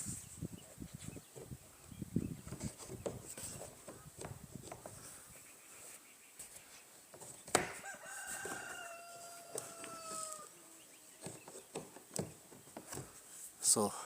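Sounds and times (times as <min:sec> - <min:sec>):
rooster crowing: 0:07.8 - 0:10.7.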